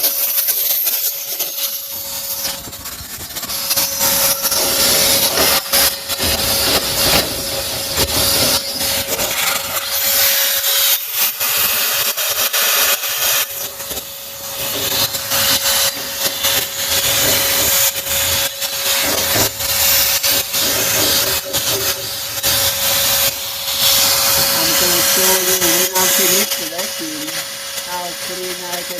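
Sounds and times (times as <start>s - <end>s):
vacuum cleaner whine: 0.0s - 28.9s
nozzle knocking and scraping metal: 2.4s - 10.4s, 11.5s - 25.0s.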